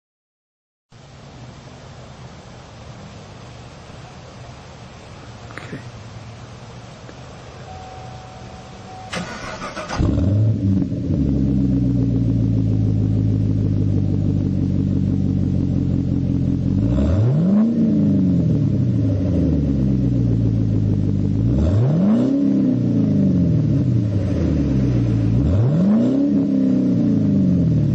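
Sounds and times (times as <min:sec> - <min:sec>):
car engine idling: 0:01.6 - 0:27.9
car engine starting: 0:06.8 - 0:27.9
car engine throttle blips: 0:07.6 - 0:27.9.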